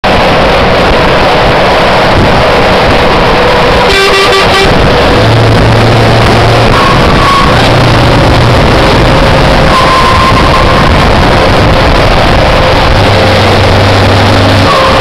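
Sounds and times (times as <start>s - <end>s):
truck engine running loud: 0.0s - 15.0s
truck horn blast: 3.6s - 5.4s, 6.0s - 8.6s, 14.5s - 15.0s.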